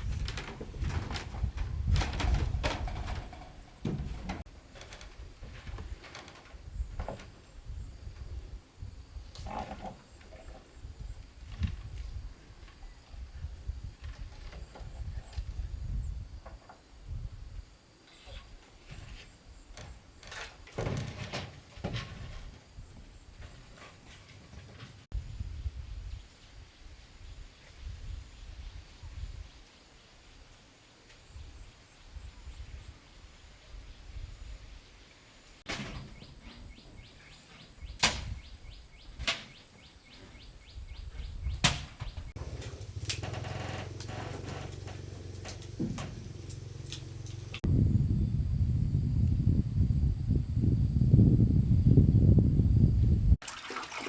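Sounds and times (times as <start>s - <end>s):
handling knocks and scrapes: 0.0s - 7.4s, 18.1s - 25.1s, 41.6s - 47.7s.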